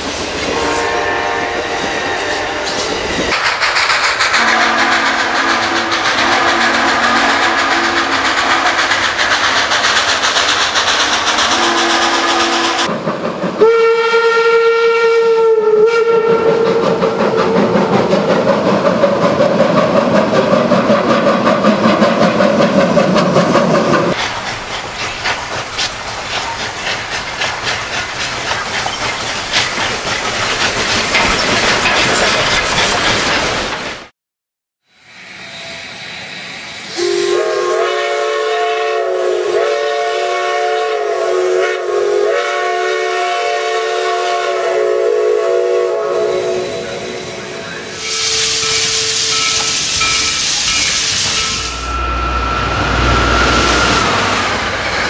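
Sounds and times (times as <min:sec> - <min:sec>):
train running on rails: 0:00.0 - 0:34.1, 0:34.9 - 0:55.0
train whistle blast: 0:00.5 - 0:02.8, 0:04.4 - 0:08.8, 0:11.3 - 0:12.9, 0:13.6 - 0:16.9, 0:36.9 - 0:54.5
wheels clicking over rail joints: 0:02.7 - 0:13.6, 0:16.6 - 0:34.0.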